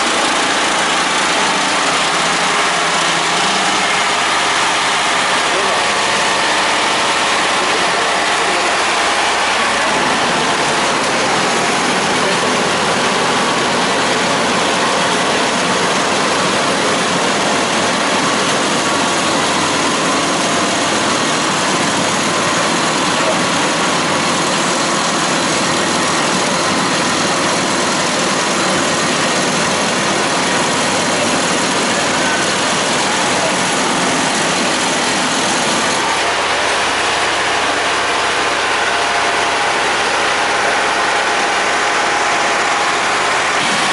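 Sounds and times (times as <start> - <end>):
construction machinery engine running: 0.0 - 43.9.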